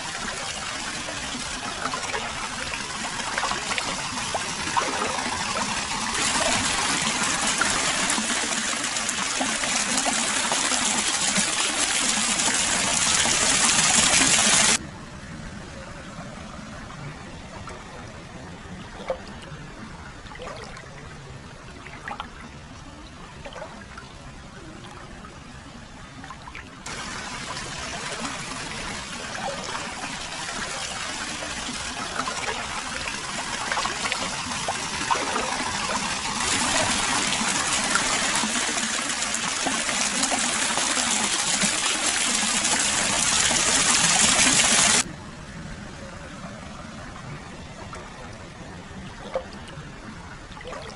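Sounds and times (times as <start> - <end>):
water pouring into a bath: 0.0 - 14.8, 26.9 - 45.1.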